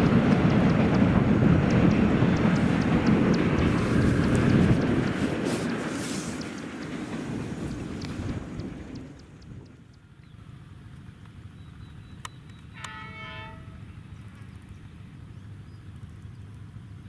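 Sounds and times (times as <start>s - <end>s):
train rumbling: 0.0s - 17.0s
train horn blast: 12.7s - 14.0s.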